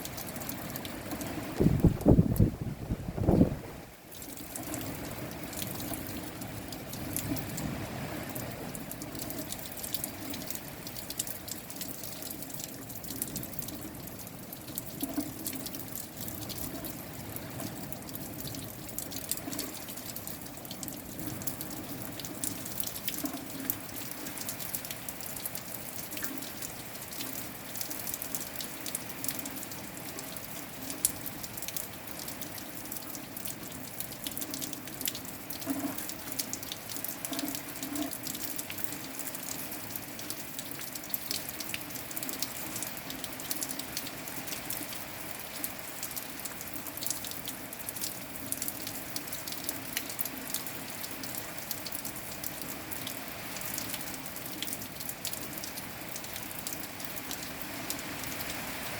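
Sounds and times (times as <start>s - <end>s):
rain falling: 0.0s - 58.9s
loud raindrop hit: 1.6s - 3.6s.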